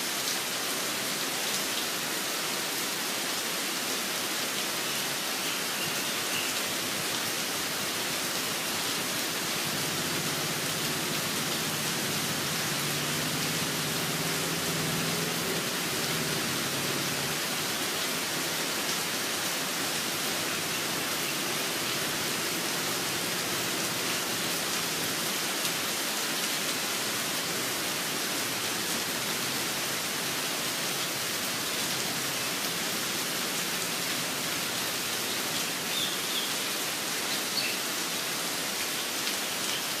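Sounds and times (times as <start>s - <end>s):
steady rain hiss: 0.0s - 40.0s
faint bird chirps: 37.2s - 37.9s.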